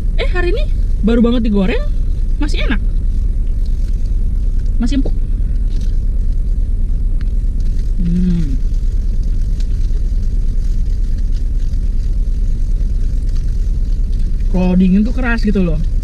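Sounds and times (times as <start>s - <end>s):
car engine idling: 0.0s - 16.0s
person humming closed-mouth: 8.0s - 8.6s.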